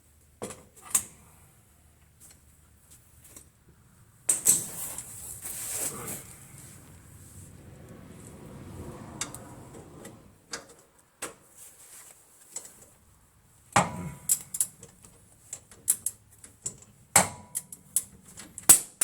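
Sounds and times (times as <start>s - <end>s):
hand tools clicking against metal: 13.8s - 19.0s.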